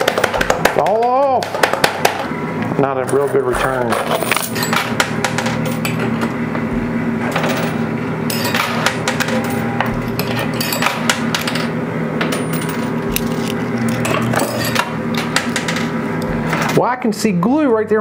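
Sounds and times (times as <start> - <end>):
arcade machine hum: 0.0 - 18.0
coins clinking on metal: 3.1 - 6.0, 7.4 - 14.9.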